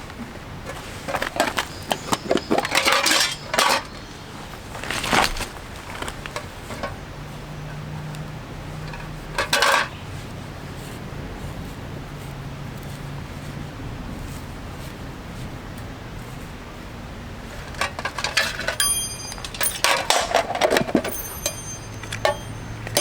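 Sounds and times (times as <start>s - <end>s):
metal cookware clinking: 1.9s - 4.2s, 17.7s - 23.0s.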